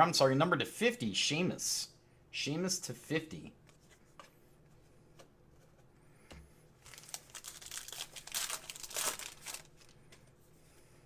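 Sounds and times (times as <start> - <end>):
foil wrapper crinkling: 6.8 - 10.2.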